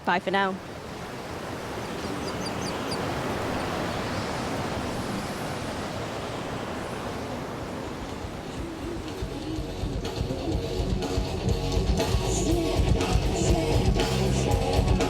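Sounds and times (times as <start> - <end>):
surf washing onto beach: 0.0 - 10.4.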